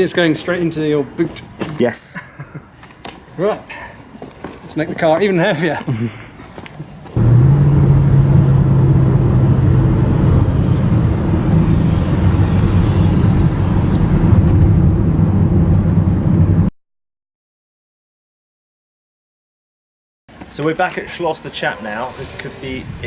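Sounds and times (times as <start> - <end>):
car engine and road noise: 7.2 - 16.7.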